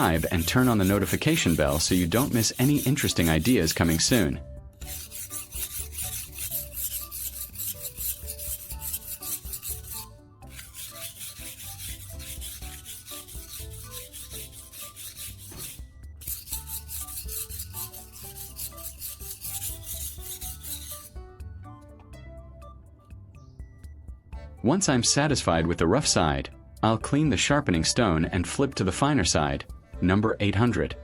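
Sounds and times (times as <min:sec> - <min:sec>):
knife scraping on whetstone: 0:00.0 - 0:21.2.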